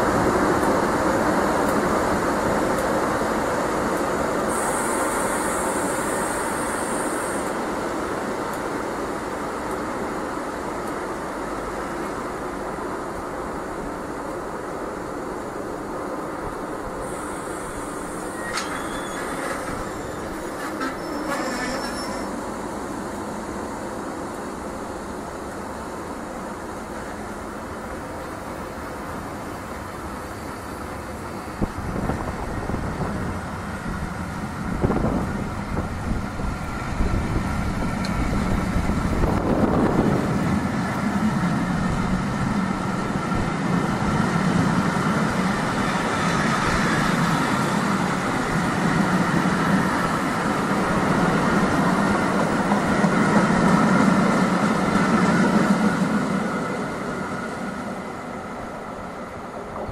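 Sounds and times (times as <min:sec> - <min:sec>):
train passing hum: 0:00.0 - 0:59.9
wind buffeting microphone: 0:31.6 - 0:53.9.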